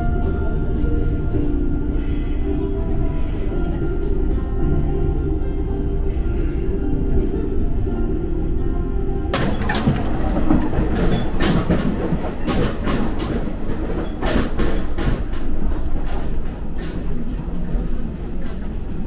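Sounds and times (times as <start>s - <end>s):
train rumble inside carriage: 0.0s - 19.0s
wheels clacking over rail joints: 9.3s - 19.0s.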